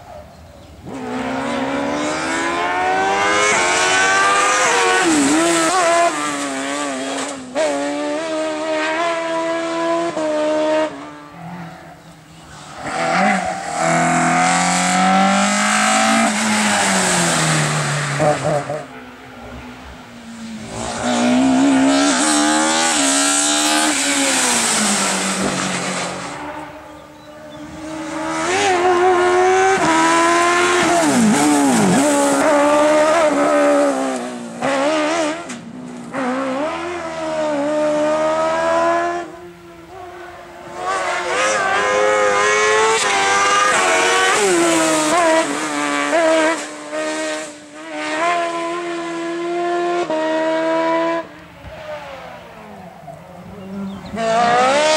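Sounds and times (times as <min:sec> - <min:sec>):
racing car engines at full throttle: 0:00.0 - 0:54.9.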